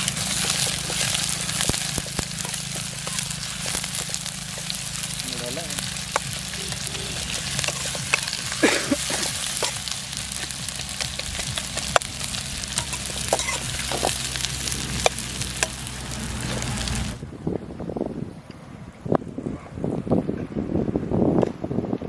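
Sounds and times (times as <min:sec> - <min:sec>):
spatula scraping pan: 0:00.0 - 0:17.1
food sizzling in hot oil: 0:00.0 - 0:17.2.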